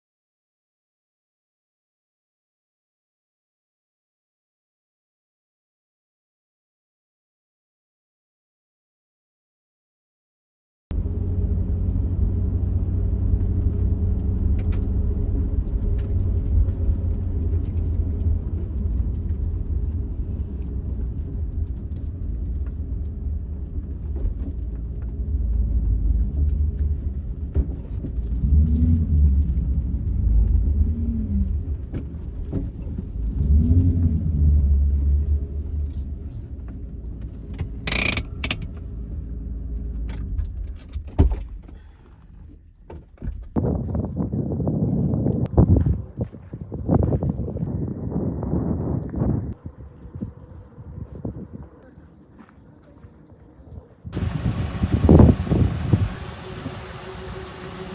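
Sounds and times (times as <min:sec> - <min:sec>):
car engine rumbling: 0:10.9 - 0:42.7, 0:54.2 - 0:57.9.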